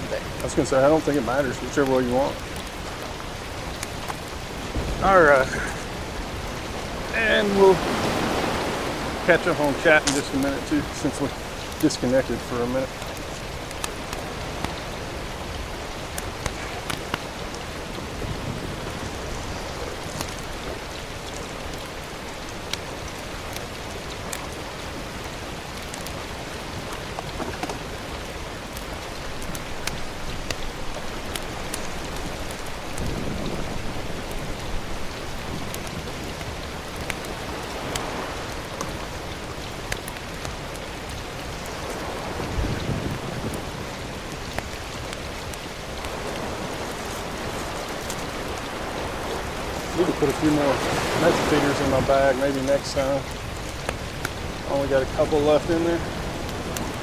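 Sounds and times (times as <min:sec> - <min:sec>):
small sharp ticks: 0:00.0 - 0:06.9, 0:07.8 - 0:57.0
low rumbling: 0:00.0 - 0:21.9
steady outdoor hiss: 0:00.0 - 0:57.0.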